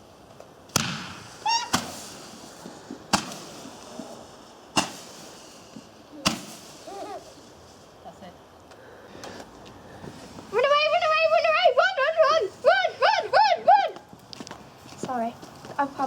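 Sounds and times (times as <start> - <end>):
firework bangs: 0.6 - 8.0
high-pitched firework squeals: 1.1 - 4.1, 4.8 - 7.8.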